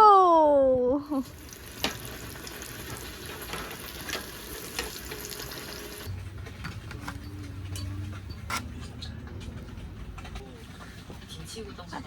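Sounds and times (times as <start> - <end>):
food sizzling in a frying pan: 1.2 - 6.1.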